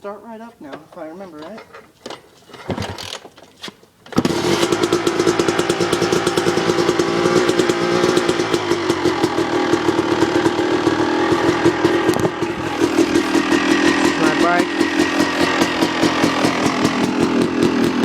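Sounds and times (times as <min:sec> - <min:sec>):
dirt bike kick-starting: 0:00.7 - 0:18.0
two-stroke engine running: 0:04.1 - 0:18.0.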